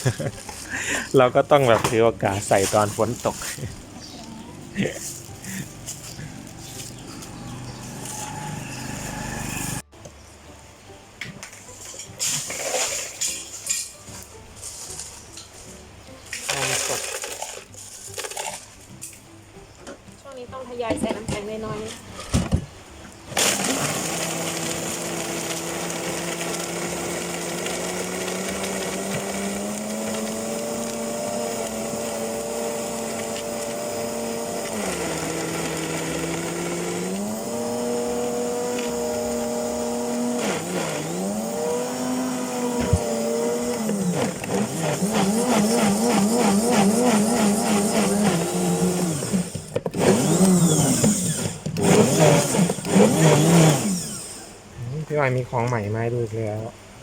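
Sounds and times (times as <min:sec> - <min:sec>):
electric blender running: 0:04.0 - 0:09.9, 0:16.4 - 0:17.5, 0:23.4 - 0:54.6.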